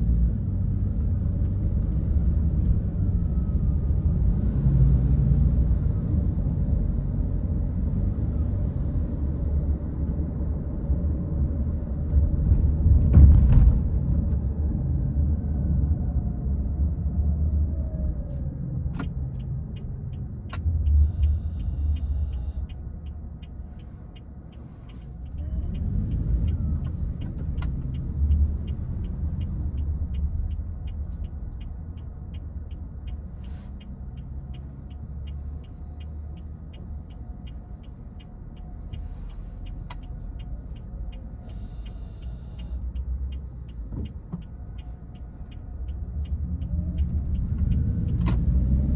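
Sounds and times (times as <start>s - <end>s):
car road and engine rumble: 0.0s - 48.9s
short high beeps: 21.0s - 22.7s, 41.5s - 42.8s.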